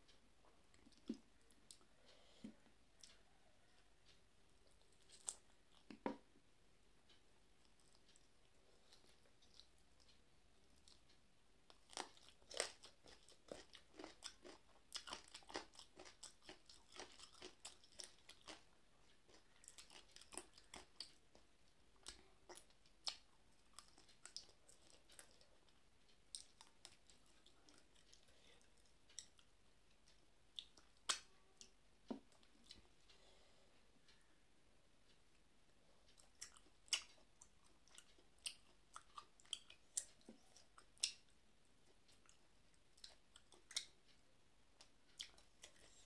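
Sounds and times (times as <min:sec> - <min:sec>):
person chewing food: 0:00.1 - 0:06.3, 0:07.1 - 0:34.3, 0:35.3 - 0:44.2, 0:44.8 - 0:46.0.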